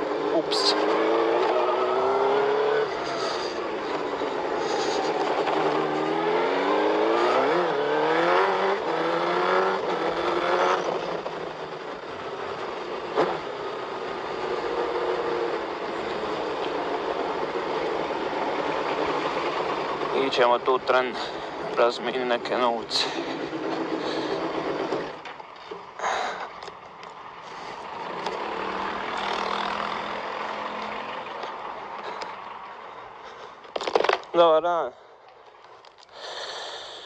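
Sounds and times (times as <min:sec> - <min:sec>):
motorcycle engine revving: 0:00.0 - 0:25.4, 0:27.9 - 0:32.3.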